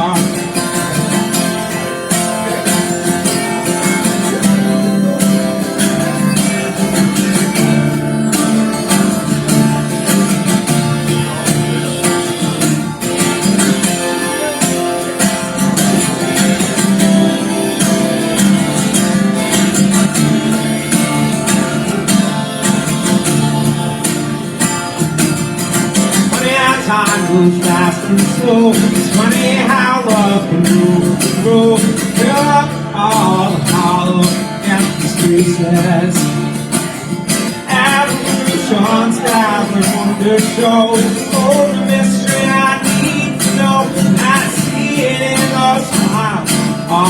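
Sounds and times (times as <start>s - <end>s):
acoustic guitar strumming: 0.0s - 47.0s.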